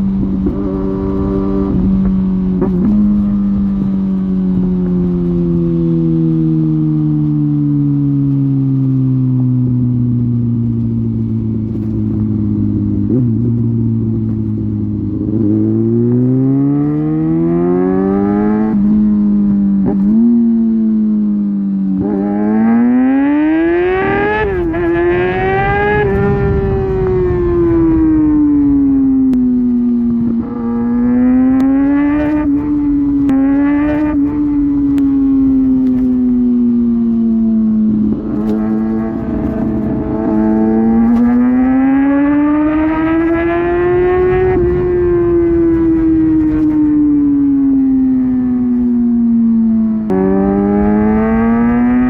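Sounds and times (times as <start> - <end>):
wind rush: 0.0 - 6.4, 23.4 - 49.2
motorcycle engine accelerating: 0.0 - 52.0.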